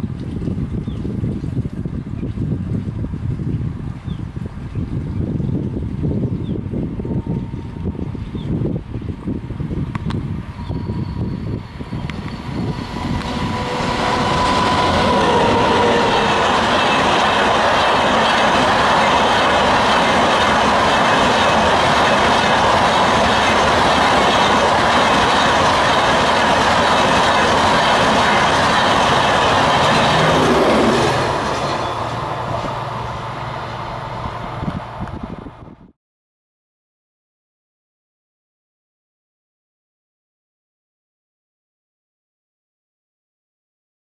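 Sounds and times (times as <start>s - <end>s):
train wheels clattering on rails: 10.0s - 33.2s.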